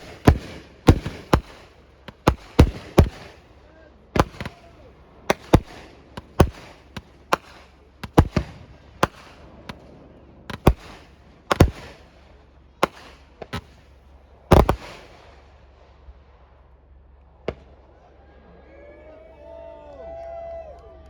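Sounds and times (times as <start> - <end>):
fireworks bangs: 0.0 - 3.6, 4.2 - 15.6.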